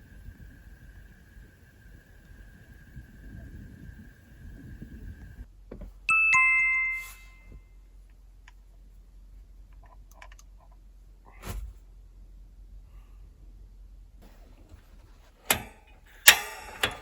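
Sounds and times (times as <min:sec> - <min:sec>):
faint high whine: 0:00.0 - 0:05.5, 0:06.1 - 0:08.0
two-note descending chime: 0:06.1 - 0:07.5.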